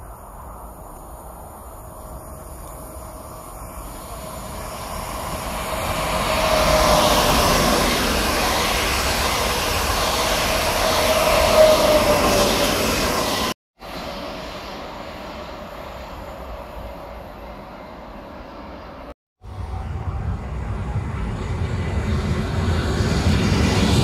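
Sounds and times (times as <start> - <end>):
steady whine: 0.0 - 24.0
train wheels rushing: 1.6 - 19.1.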